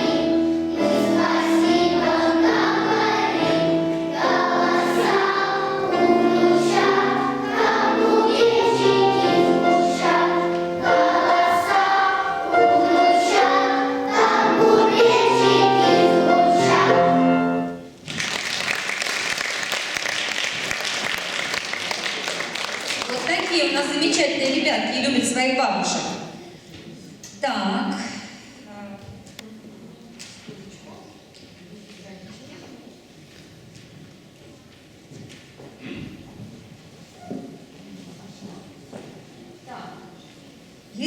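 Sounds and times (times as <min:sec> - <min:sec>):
children's choir singing: 0:00.0 - 0:17.9
musical accompaniment: 0:00.0 - 0:18.0
applause: 0:18.0 - 0:23.7.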